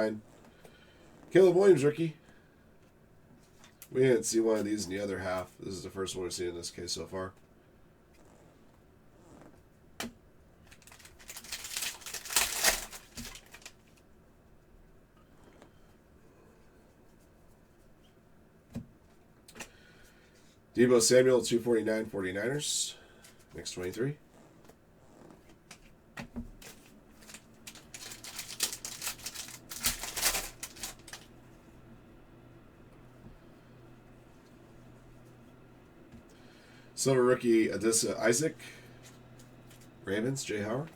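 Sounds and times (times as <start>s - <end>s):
foil wrapper crinkling: 10.7s - 14.0s, 26.6s - 31.3s.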